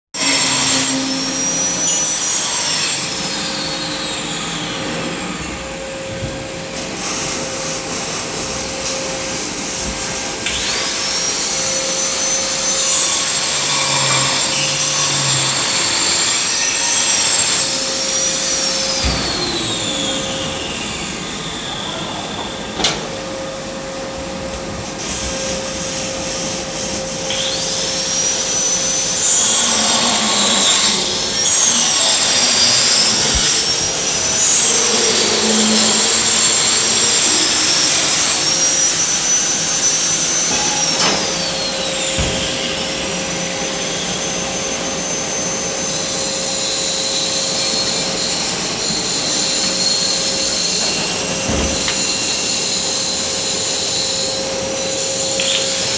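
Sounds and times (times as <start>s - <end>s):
power tools whining: 8.7s - 23.9s, 27.1s - 55.9s.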